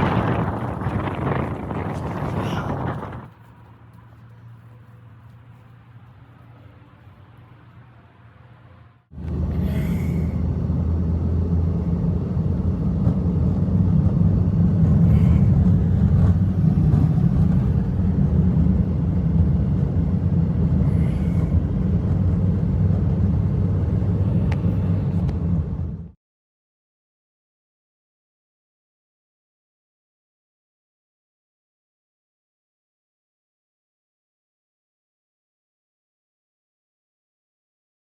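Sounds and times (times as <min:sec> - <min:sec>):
blizzard wind rumble: 0:00.0 - 0:04.2, 0:09.1 - 0:26.2.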